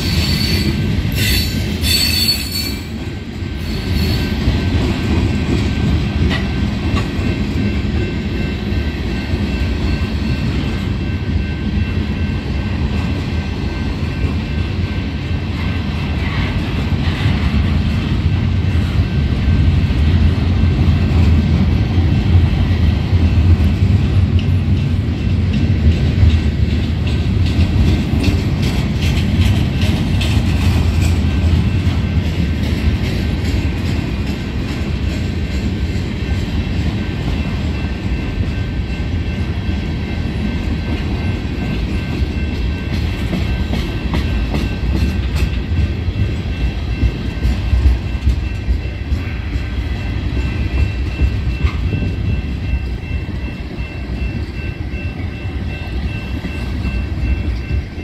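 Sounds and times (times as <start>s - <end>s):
steel wheels rumbling on rail: 0.0s - 58.0s
wheels clicking over rail joints: 23.5s - 37.4s.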